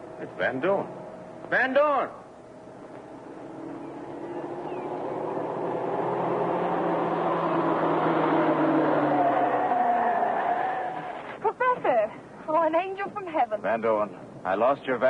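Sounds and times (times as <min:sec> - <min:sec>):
approaching vehicle engine: 0:03.1 - 0:11.3.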